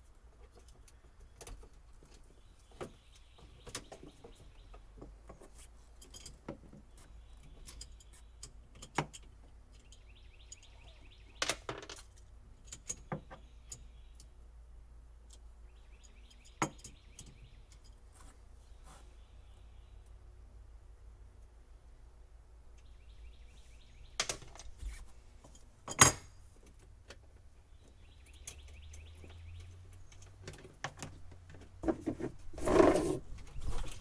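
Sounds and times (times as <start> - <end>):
birds chirping: 0.4 - 6.0, 6.7 - 25.6, 27.1 - 32.0
light metallic clicks and clinks: 5.8 - 6.6, 7.2 - 11.1, 11.9 - 14.4, 15.2 - 18.1, 25.4 - 27.2.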